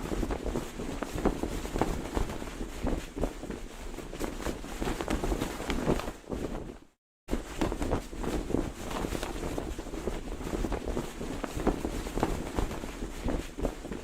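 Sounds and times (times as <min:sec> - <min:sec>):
cloth flag flapping in wind: 0:00.0 - 0:14.0.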